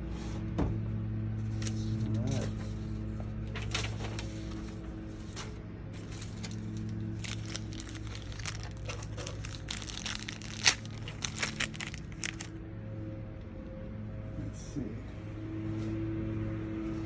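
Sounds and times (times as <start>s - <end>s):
packaging crinkling and rustling: 6.0s - 12.5s.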